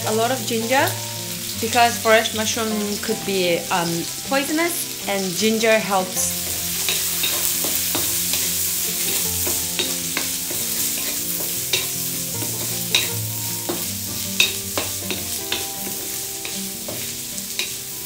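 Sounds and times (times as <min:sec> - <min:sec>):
food sizzling in a wok: 0:00.0 - 0:18.0
spatula scraping and tapping pan: 0:06.7 - 0:17.8.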